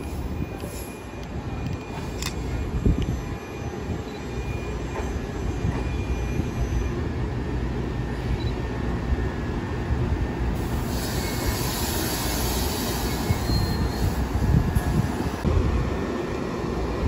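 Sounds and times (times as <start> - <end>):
train wheels rumbling on rail: 0.0 - 17.0
high hiss from train wheels: 10.6 - 15.0.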